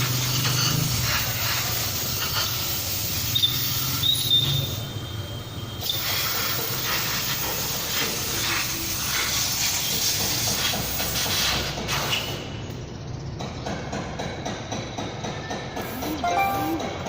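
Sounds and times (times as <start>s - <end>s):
loud steady hiss: 5.8s - 12.6s.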